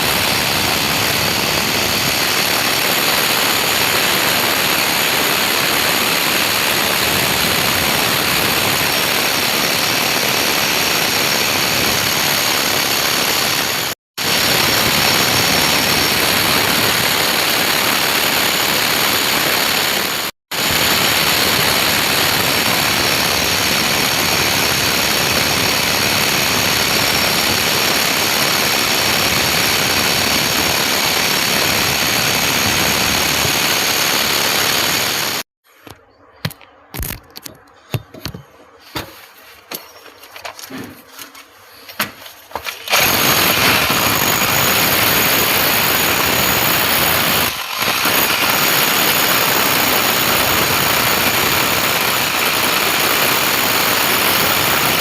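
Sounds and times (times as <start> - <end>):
loud steady machine noise: 0.0 - 35.5, 42.7 - 55.0.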